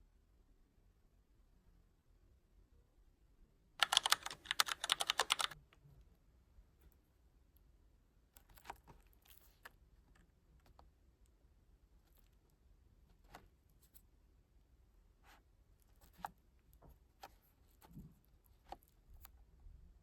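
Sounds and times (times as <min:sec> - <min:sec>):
rapid sharp clicks: 0:03.8 - 0:05.6.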